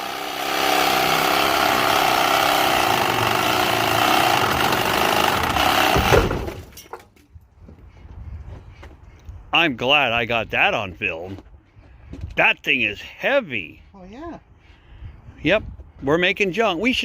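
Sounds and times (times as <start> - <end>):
reciprocating saw cutting steel: 0.0 - 6.2
heavy low thud: 5.9 - 6.6.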